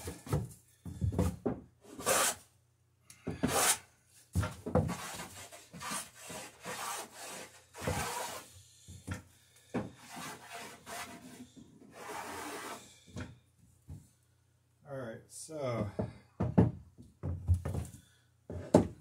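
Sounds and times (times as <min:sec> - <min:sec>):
hand plane rasping on wood: 0:02.0 - 0:02.4, 0:03.4 - 0:03.8, 0:04.9 - 0:08.4, 0:10.0 - 0:12.8.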